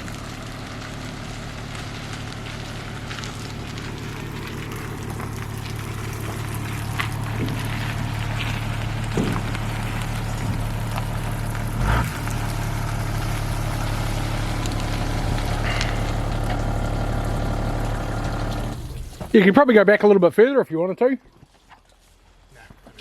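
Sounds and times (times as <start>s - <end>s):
vehicle engine idling: 0.0s - 19.4s
loud thump: 9.1s - 9.6s.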